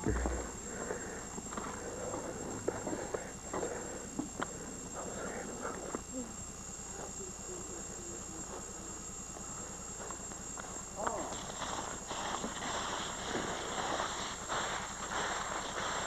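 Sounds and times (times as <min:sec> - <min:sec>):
faint voices: 0:00.0 - 0:11.8
high-pitched whine: 0:00.0 - 0:16.0.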